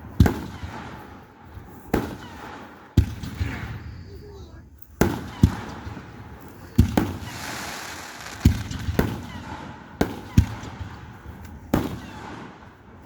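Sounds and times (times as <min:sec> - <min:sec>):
fireworks bangs: 0:05.0 - 0:12.6
hissing crackle of fireworks: 0:06.5 - 0:10.7.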